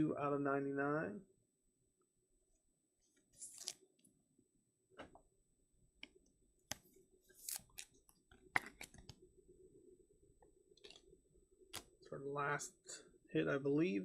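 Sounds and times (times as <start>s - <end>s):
trading cards clicking and brushing: 3.4s - 3.8s.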